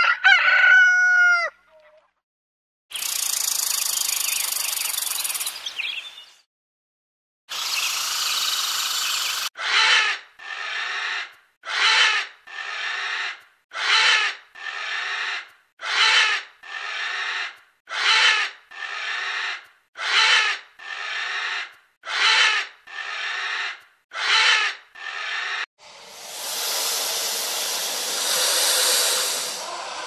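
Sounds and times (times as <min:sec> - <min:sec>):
porcupine making noisy bursts: 0:25.8 - 0:30.0.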